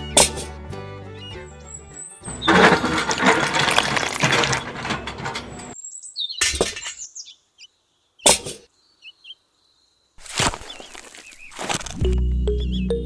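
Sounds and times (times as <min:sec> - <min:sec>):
background music: 0:00.0 - 0:02.5.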